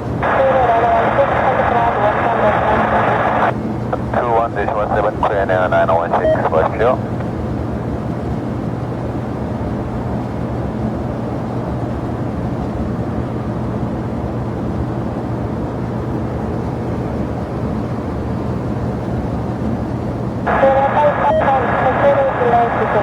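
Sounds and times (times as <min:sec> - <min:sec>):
faint steady hum: 0:00.0 - 0:07.9, 0:19.6 - 0:23.0
jet engine rumble: 0:00.0 - 0:23.0.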